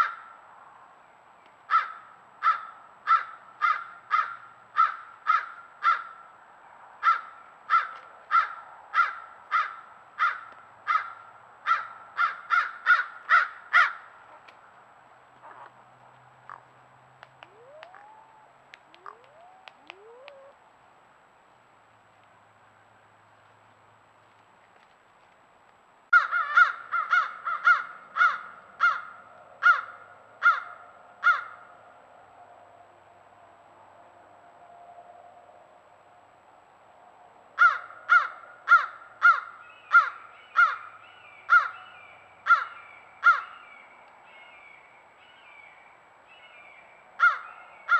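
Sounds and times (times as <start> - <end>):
bird harsh calls: 17.4 - 20.6, 37.6 - 47.9.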